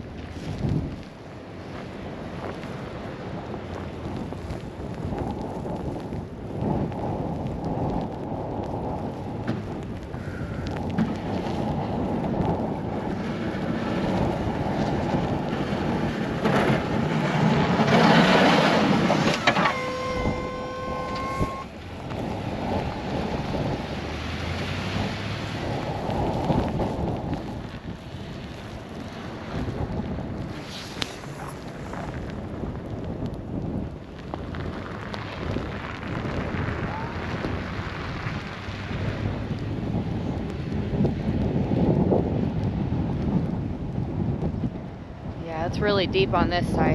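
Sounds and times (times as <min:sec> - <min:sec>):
wind buffeting microphone: 0:00.0 - 0:46.9
snow-removal machine engine: 0:13.0 - 0:21.6
steady pitched tone: 0:19.3 - 0:21.7.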